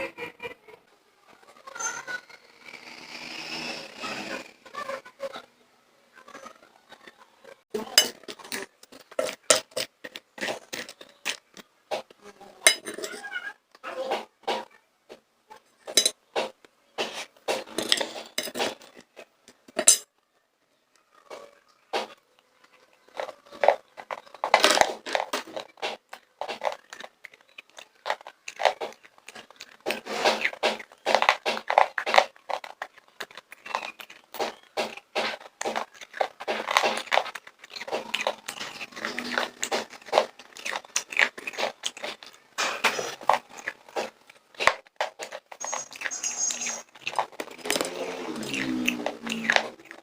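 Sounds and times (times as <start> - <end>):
popcorn being crunched and chewed: 7.8 - 13.4, 15.8 - 20.3, 21.0 - 50.0.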